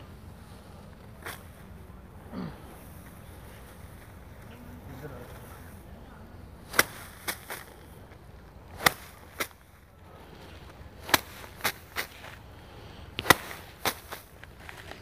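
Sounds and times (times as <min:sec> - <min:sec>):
rice stalks whacked by hand: 0:00.5 - 0:01.8, 0:06.6 - 0:15.0.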